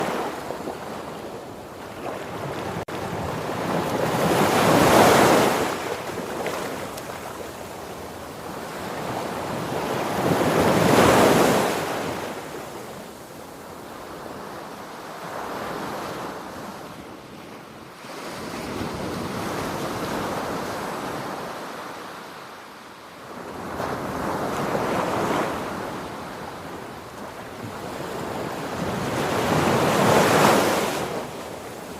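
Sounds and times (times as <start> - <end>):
sea waves breaking: 0.0 - 12.6.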